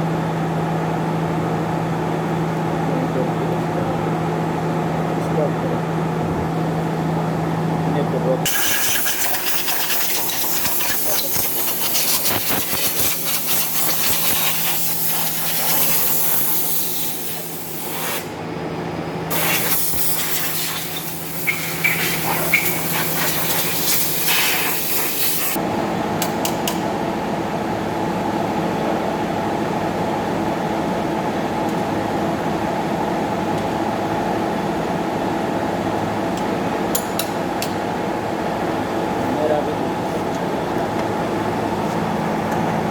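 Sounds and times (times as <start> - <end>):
steady mechanical hum: 0.0 - 42.9
loud hiss of air or spray: 8.5 - 18.3, 19.3 - 25.6.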